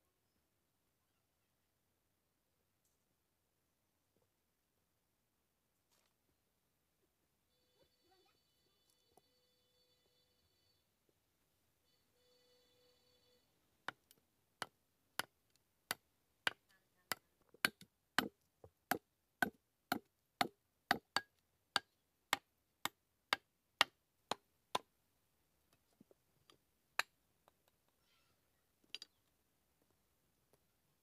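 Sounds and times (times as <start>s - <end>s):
blade chopping wooden log: 17.6s - 21.3s.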